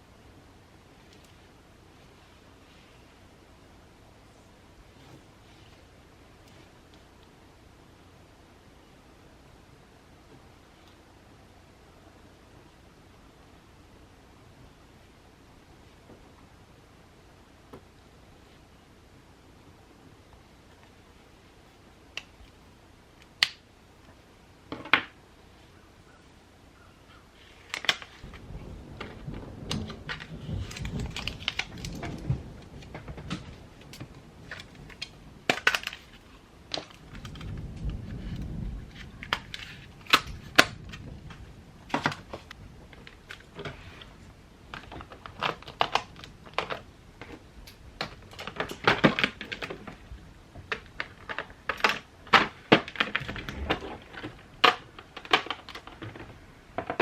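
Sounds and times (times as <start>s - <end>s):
low rumbling: 28.2s - 35.5s.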